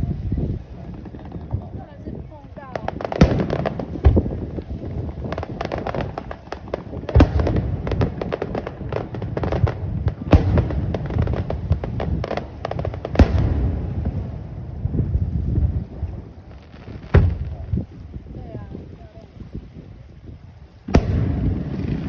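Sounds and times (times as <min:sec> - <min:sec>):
firework crackling: 0:00.0 - 0:17.9, 0:20.9 - 0:22.0
firework bursts: 0:02.5 - 0:15.1, 0:20.9 - 0:22.0.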